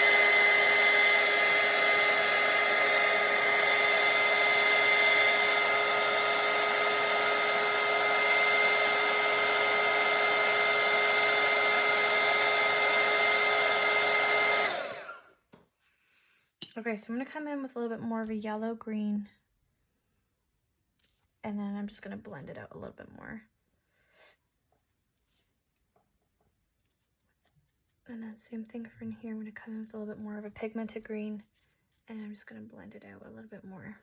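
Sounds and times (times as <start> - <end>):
blow dryer running: 0.0 - 15.4.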